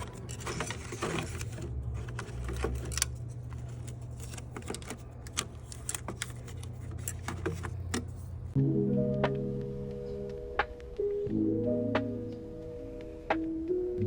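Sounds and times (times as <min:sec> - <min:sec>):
metal tools clicking and clinking: 0:00.0 - 0:08.2
low steady hum: 0:00.0 - 0:10.6.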